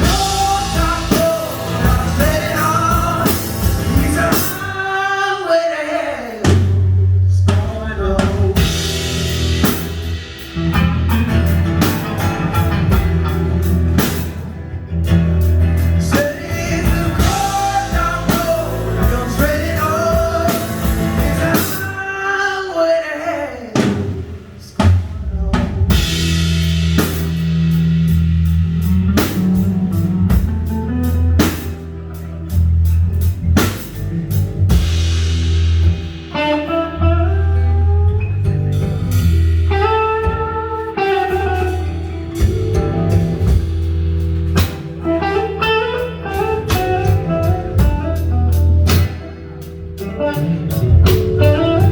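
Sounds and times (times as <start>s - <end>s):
drum kit beat: 0.0s - 4.9s, 6.4s - 22.1s, 23.8s - 51.9s
melodic lead line: 0.0s - 4.9s, 39.0s - 51.9s
electric bass: 0.0s - 5.2s, 6.4s - 22.2s, 24.6s - 51.9s
keyboard: 0.0s - 5.8s, 8.0s - 23.2s, 25.9s - 51.9s.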